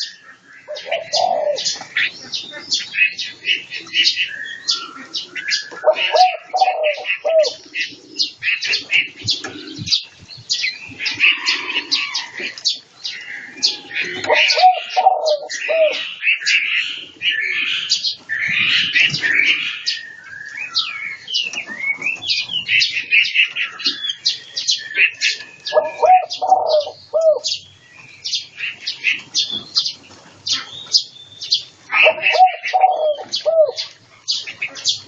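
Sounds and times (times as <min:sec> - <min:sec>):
cage birds chirping: 0:00.0 - 0:35.0
low rising and falling bird call: 0:04.0 - 0:29.0, 0:31.9 - 0:34.4.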